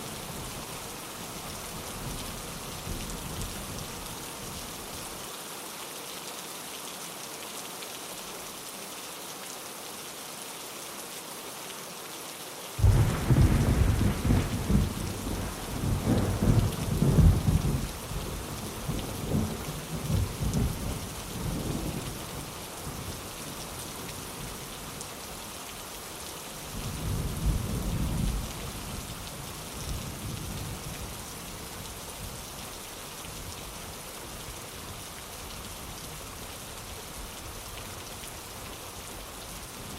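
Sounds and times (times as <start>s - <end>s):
steady rain hissing: 0.0s - 39.9s
thunder crack and rumble: 12.8s - 18.0s.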